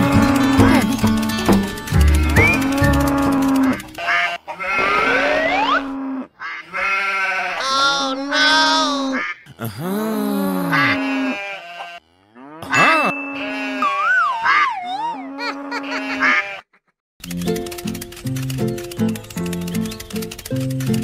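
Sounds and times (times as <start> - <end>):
cartoon animal-like vocal calls: 2.4 - 6.9, 7.5 - 12.0, 12.6 - 16.9.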